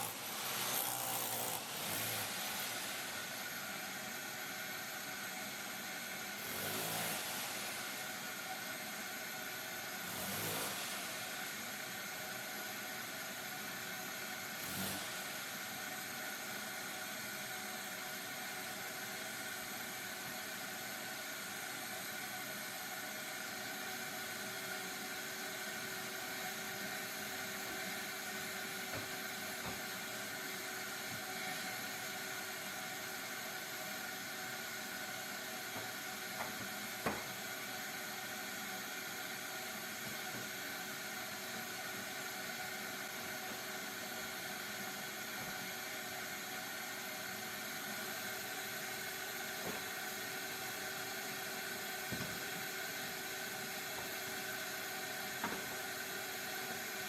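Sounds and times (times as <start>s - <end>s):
power tool motor whir: 0.0s - 3.9s, 6.4s - 8.1s, 10.0s - 11.6s, 14.6s - 15.4s.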